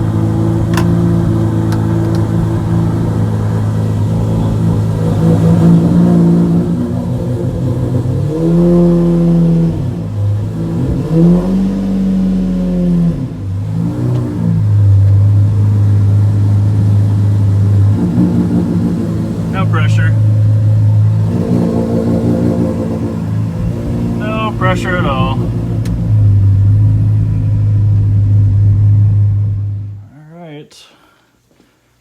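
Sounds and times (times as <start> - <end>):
car engine idling and revving: 0.0 - 30.1.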